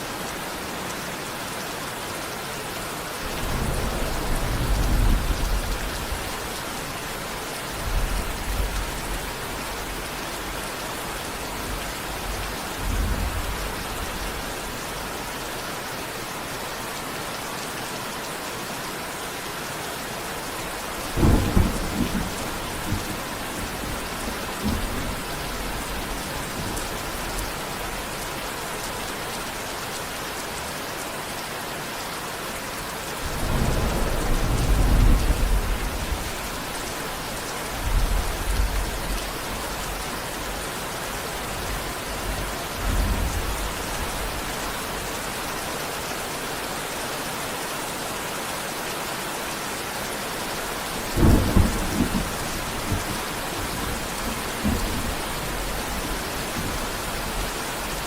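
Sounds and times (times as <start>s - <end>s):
steady rain: 0.0s - 58.0s
thunder rumbling: 3.3s - 6.6s, 21.1s - 28.1s, 33.2s - 39.2s, 51.0s - 58.0s.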